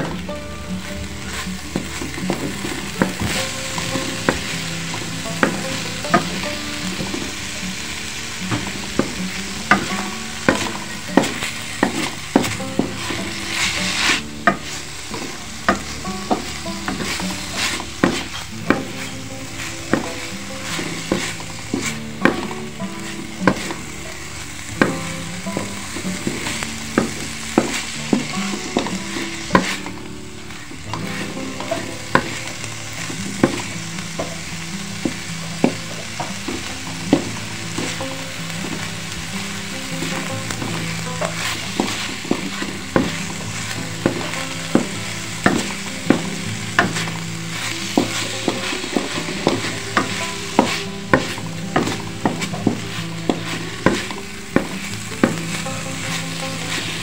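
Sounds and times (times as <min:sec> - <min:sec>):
filling sizzling in a wok: 0:00.0 - 0:57.0
wooden spatula scraping: 0:00.8 - 0:07.5, 0:08.5 - 0:57.0
spatula tapping against pan: 0:08.5 - 0:23.8, 0:24.7 - 0:30.0, 0:40.0 - 0:55.6.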